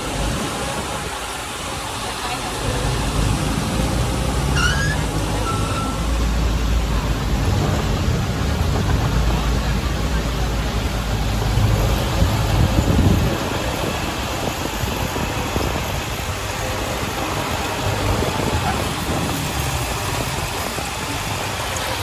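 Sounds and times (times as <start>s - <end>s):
heavy machinery diesel engine: 0.0s - 22.0s.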